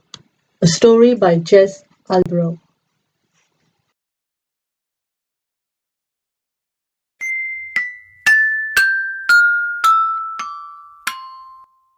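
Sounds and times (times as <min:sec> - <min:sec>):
glockenspiel descending scale: 0:07.2 - 0:11.9.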